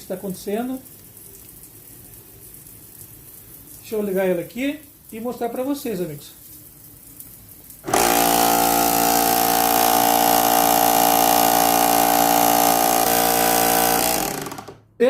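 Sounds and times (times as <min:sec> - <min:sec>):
fan catching on housing: 0:07.8 - 0:14.9
pressure washer motor running: 0:07.8 - 0:14.9.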